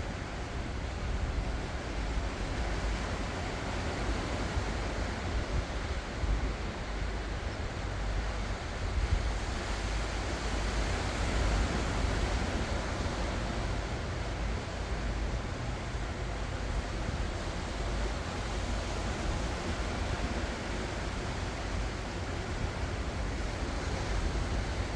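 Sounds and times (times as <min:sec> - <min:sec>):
waves breaking on shore: 0:00.0 - 0:24.9.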